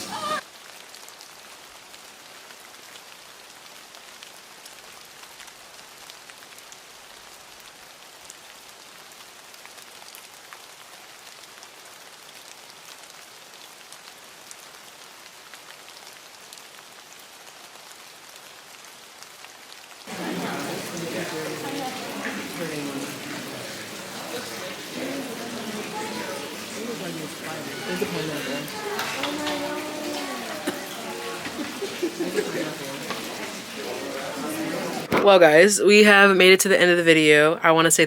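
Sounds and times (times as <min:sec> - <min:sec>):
water drips splashing: 0:20.1 - 0:35.1
falling water pattering: 0:20.1 - 0:37.4.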